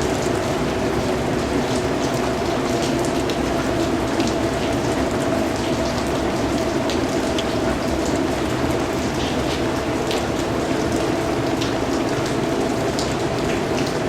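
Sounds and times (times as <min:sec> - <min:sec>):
raindrops ticking: 0:00.0 - 0:14.0
steady rain falling: 0:00.0 - 0:14.0.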